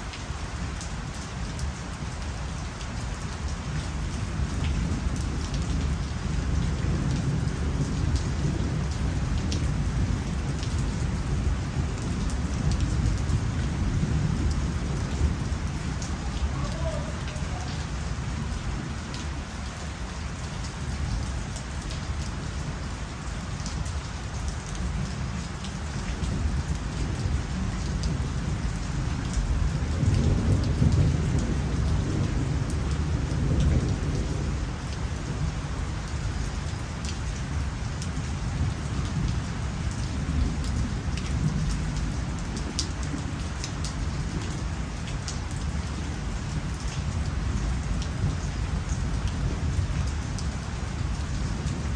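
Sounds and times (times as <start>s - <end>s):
steady rain: 0.0s - 51.9s
low thunder rumble: 4.0s - 19.5s, 26.2s - 36.1s.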